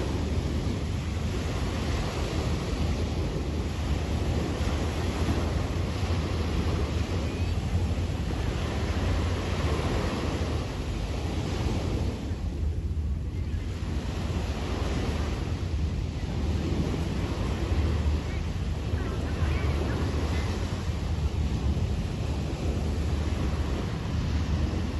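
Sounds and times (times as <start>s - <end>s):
sea waves washing on beach: 0.0s - 24.9s
wind rumbling on microphone: 0.0s - 24.9s.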